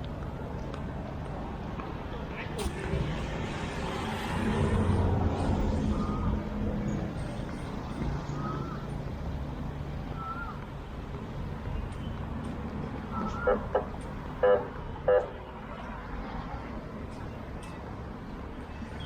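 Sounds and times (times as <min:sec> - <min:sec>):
traffic hum: 0:00.0 - 0:19.0
vehicle engine passing: 0:02.6 - 0:08.8.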